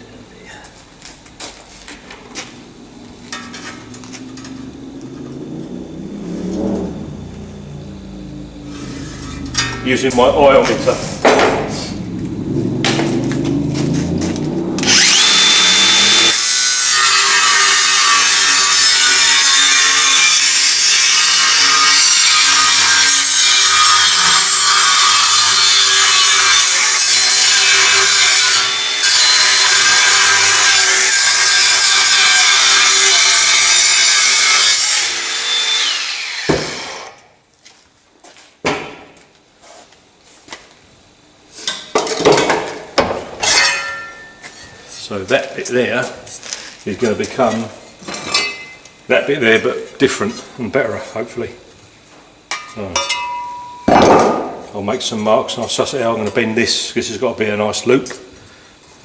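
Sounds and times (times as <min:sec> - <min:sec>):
power tool cutting metal: 0:08.6 - 0:11.0, 0:12.9 - 0:37.3.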